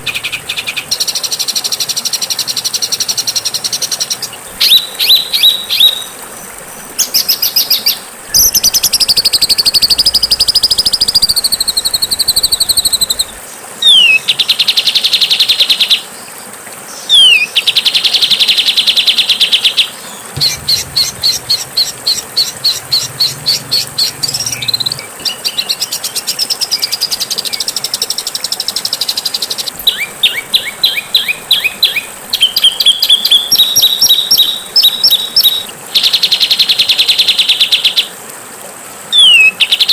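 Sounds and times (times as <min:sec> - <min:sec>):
songbird trilling and chattering: 0:07.0 - 0:14.2, 0:20.4 - 0:26.2.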